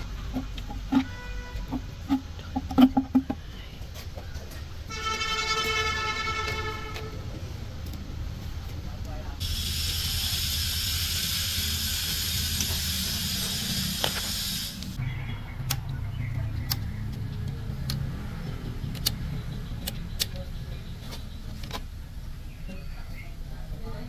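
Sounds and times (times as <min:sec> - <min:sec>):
loud steady hiss: 0:09.4 - 0:15.0
sharp clicks and taps: 0:15.6 - 0:20.5.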